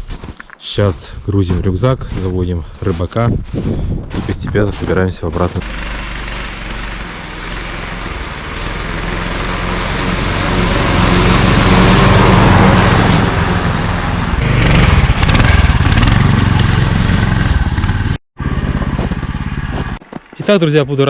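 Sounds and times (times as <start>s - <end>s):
snowmobile engine revving: 5.5s - 18.6s.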